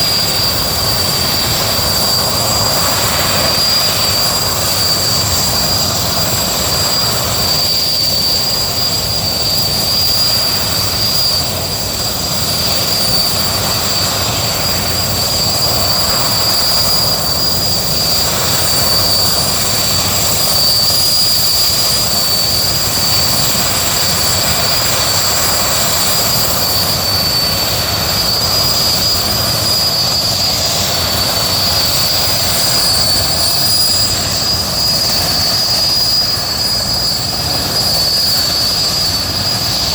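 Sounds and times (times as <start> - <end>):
helicopter engines and rotor: 0.0 - 39.9
high-pitched turbine whine: 0.0 - 39.9.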